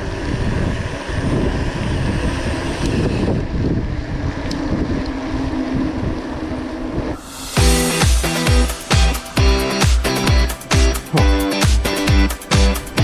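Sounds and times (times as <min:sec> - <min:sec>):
wind rumbling on microphone: 0:00.0 - 0:07.8.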